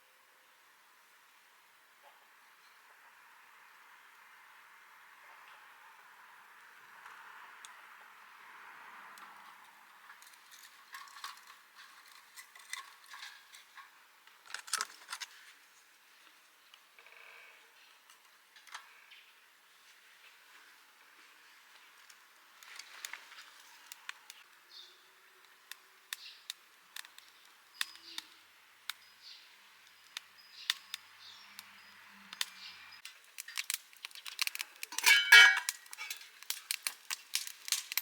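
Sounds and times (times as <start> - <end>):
cooking gear clicking and knocking: 33.4 - 38.0.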